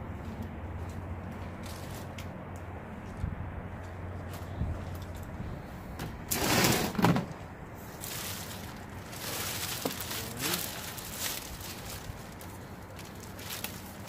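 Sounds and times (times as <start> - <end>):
rustling through belongings: 6.3 - 14.0.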